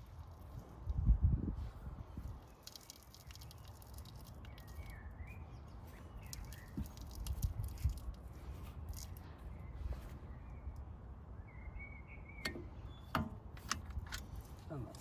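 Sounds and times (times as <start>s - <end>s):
faint bird chirps: 3.1s - 7.2s.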